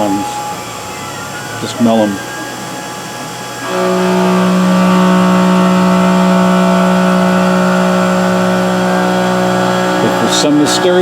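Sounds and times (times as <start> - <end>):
end mill cutting aluminum: 3.0 - 11.0.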